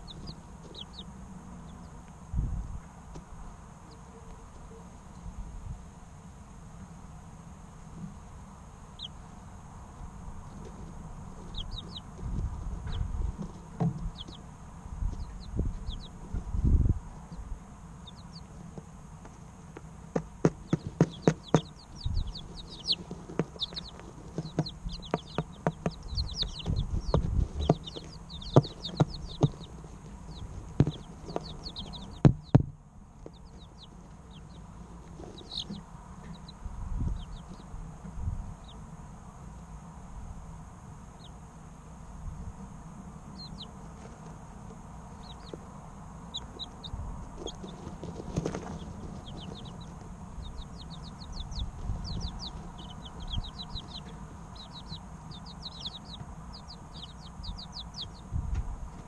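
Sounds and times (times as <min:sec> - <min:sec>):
chicks peeping: 0:00.0 - 0:05.4, 0:08.8 - 0:39.0, 0:41.1 - 0:41.5, 0:43.2 - 0:59.0
sharp taps and knocks: 0:23.0 - 0:29.7, 0:30.8 - 0:33.4.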